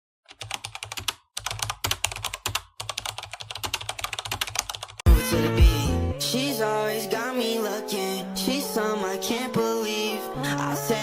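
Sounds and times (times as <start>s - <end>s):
keyboard typing clicks: 0.3s - 5.0s
music with heavy bass: 5.1s - 6.5s.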